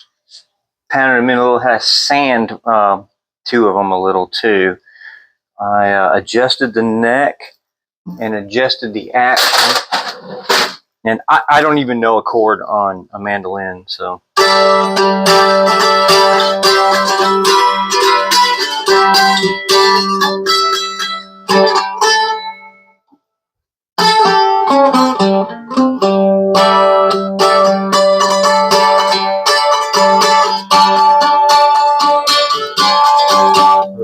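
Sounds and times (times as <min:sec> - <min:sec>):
mandolin picked and strummed: 0:00.0 - 0:02.9, 0:08.1 - 0:10.8, 0:14.4 - 0:22.9, 0:24.0 - 0:34.0.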